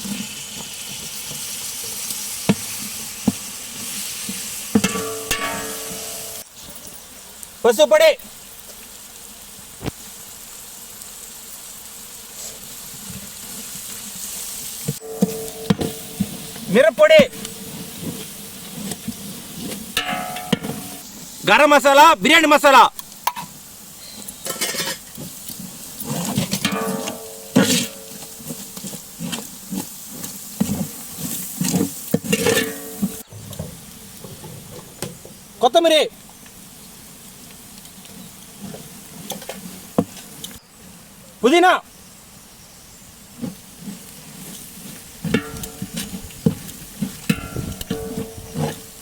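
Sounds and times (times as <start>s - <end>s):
food sizzling in hot oil: 0.0s - 40.8s, 41.9s - 49.0s
metal ladle scraping pot: 3.9s - 6.4s, 15.0s - 21.1s, 24.2s - 25.4s, 26.0s - 33.7s, 43.8s - 49.0s.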